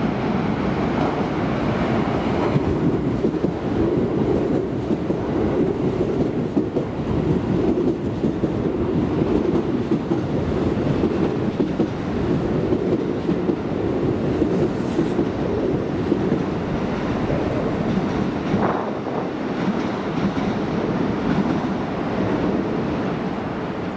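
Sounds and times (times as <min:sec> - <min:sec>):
train wheels rumbling on rails: 0:00.0 - 0:23.9.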